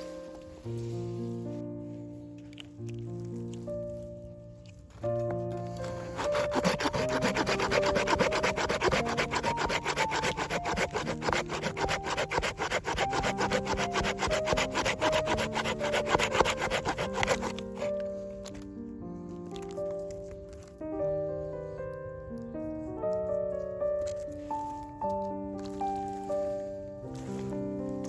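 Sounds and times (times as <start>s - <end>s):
background music: 0.0s - 28.0s
hand saw cutting wood: 5.8s - 18.0s.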